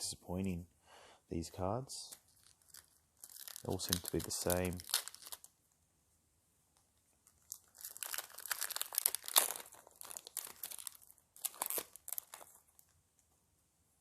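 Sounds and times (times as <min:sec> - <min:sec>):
foil wrapper crinkling: 0:02.1 - 0:05.5, 0:07.2 - 0:12.9.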